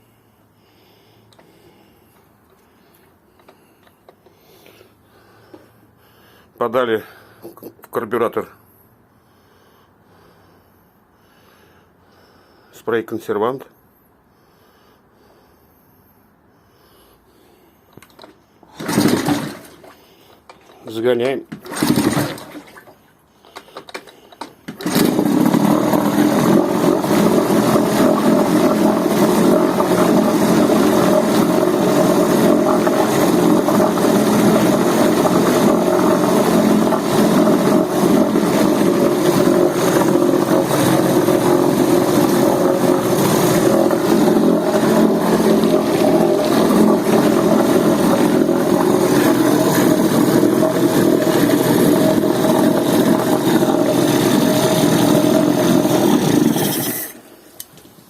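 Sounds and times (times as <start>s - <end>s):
outboard motor running: 18.1s - 57.3s.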